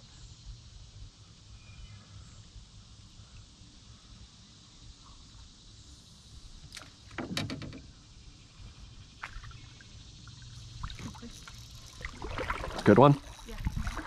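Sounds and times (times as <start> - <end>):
knocks and clatters in a canoe: 6.7 - 8.0, 10.8 - 14.0.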